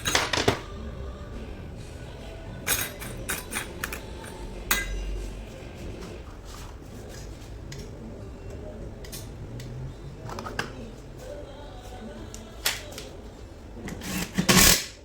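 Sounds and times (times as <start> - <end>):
metal tools clinking and knocking: 2.7 - 5.2.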